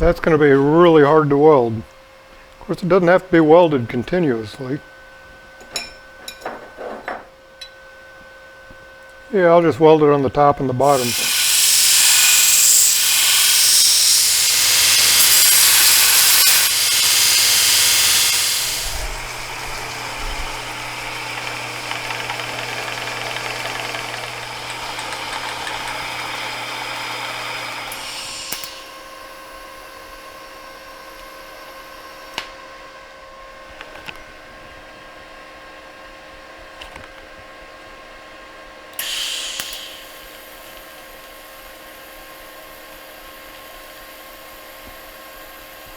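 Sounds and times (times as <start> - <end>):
welding machine hum: 10.8 - 31.9
electric welder hissing: 10.8 - 32.4, 39.0 - 45.9.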